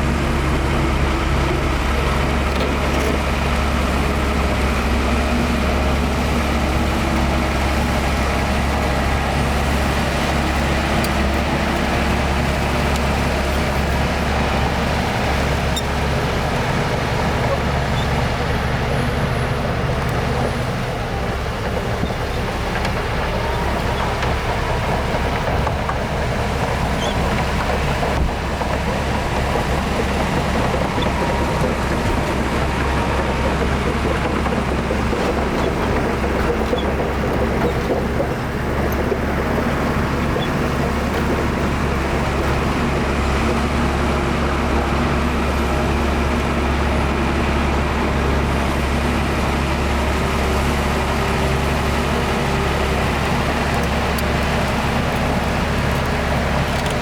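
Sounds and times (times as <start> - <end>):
heavy diesel engine humming: 0.0 - 57.0.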